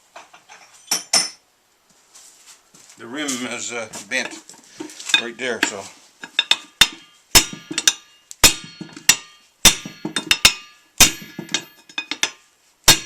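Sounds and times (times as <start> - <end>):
hammer striking metal wheel rim: 5.6 - 13.0.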